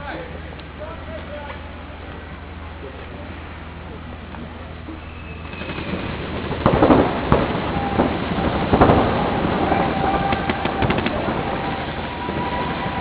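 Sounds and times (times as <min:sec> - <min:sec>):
steady noisy background: 0:00.0 - 0:13.0
paintball markers firing: 0:10.3 - 0:11.2.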